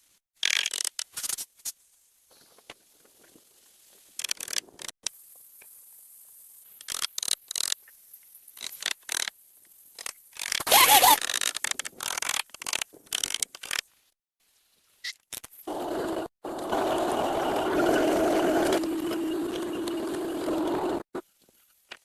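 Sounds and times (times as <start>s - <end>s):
scrape with squeak: 10.6s - 11.4s.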